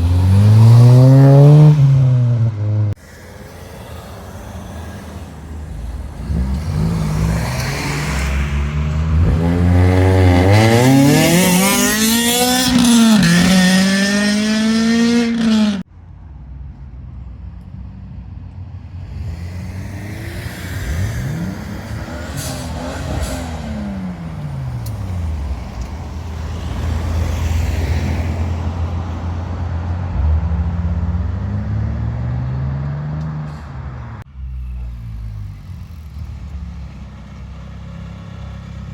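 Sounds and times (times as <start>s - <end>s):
car engines revving: 0.0s - 15.9s, 17.0s - 38.9s
idling cars rumble: 2.9s - 9.6s, 20.8s - 38.9s.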